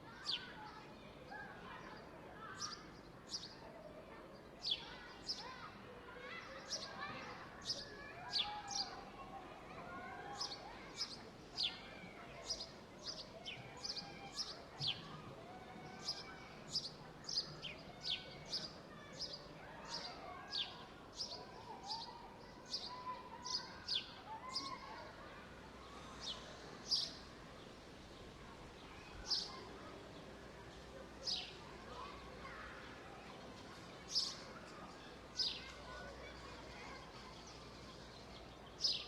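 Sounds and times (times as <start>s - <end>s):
small birds chirping: 16.0s - 24.9s, 25.9s - 39.0s.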